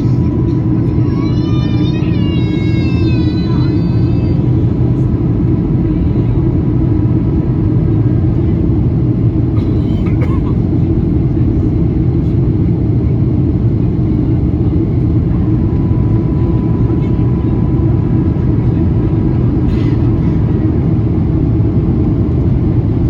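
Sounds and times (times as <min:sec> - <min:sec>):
jet engine cabin rumble: 0:00.0 - 0:23.0.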